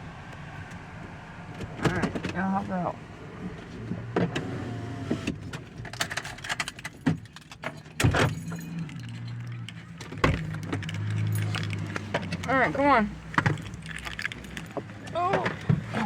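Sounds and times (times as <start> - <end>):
low vehicle hum: 0.0 - 16.0
metal jangling: 6.1 - 12.6, 13.5 - 14.9.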